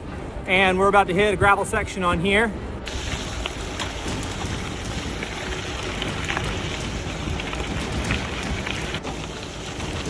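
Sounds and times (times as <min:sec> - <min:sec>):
crackles of grit and stones: 0:02.8 - 0:10.0
bicycle tyres on wet gravel: 0:02.9 - 0:10.0
wind rumble on microphone: 0:02.9 - 0:10.0.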